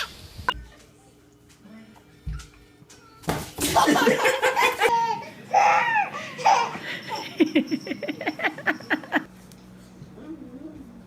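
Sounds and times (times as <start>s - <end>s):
person laughing hard: 3.8s - 9.3s.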